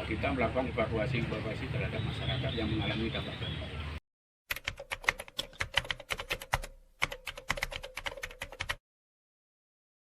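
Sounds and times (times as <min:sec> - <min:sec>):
rapid typing on a keyboard: 0:04.5 - 0:08.8.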